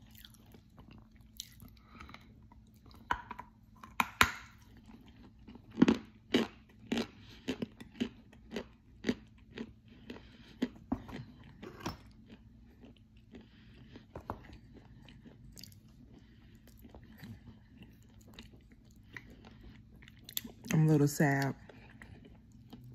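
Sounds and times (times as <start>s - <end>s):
person chewing crunchy chalk: 4.5s - 20.7s.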